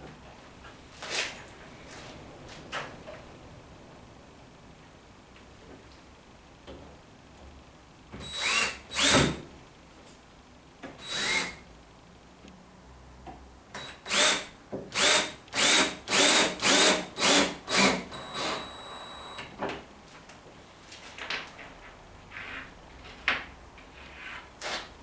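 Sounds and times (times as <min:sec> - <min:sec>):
drill driving screws into wood: 0:08.2 - 0:09.4, 0:11.0 - 0:11.6, 0:13.8 - 0:18.8.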